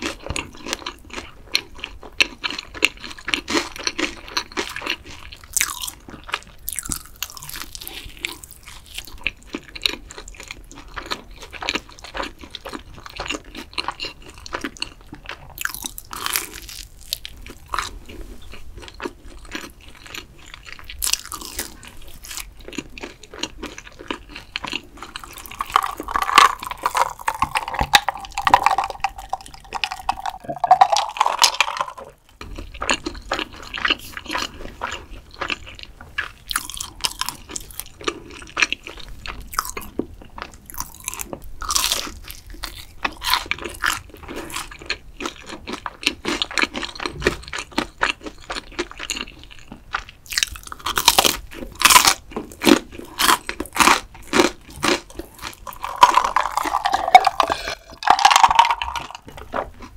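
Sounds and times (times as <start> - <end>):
chewing crunchy food: 0.0 - 59.9
person swallowing drink: 25.6 - 32.2, 55.8 - 59.7.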